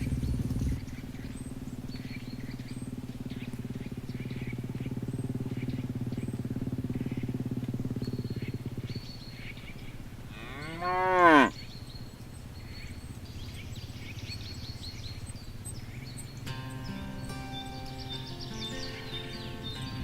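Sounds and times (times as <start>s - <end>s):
steady low hum: 0.0s - 10.8s
cow mooing: 10.3s - 11.6s.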